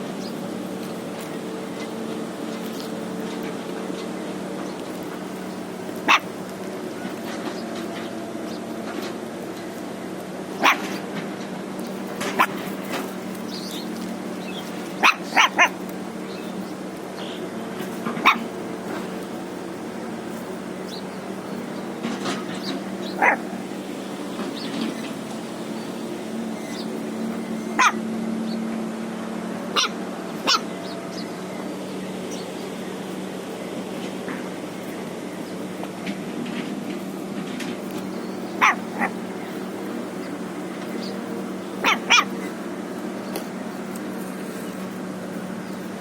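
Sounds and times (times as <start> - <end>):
puppy yipping and barking: 6.0 - 6.4, 10.5 - 11.0, 12.2 - 13.8, 14.5 - 15.9, 17.8 - 18.6, 22.6 - 23.6, 26.6 - 28.1, 29.7 - 31.0, 38.3 - 42.7.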